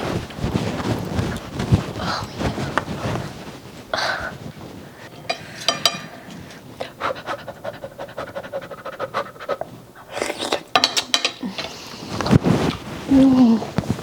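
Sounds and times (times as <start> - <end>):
heavy breaths through nose: 0.0 - 10.6.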